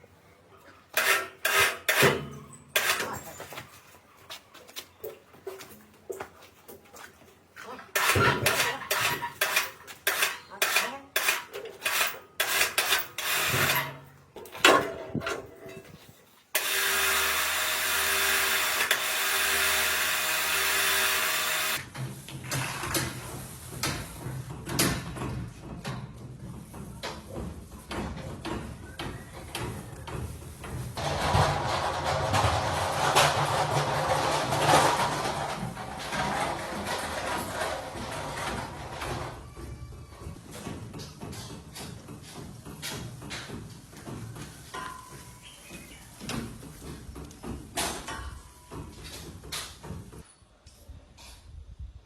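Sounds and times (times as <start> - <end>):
metallic clatter and scraping: 0.9 - 4.0, 7.6 - 16.5, 29.6 - 39.6.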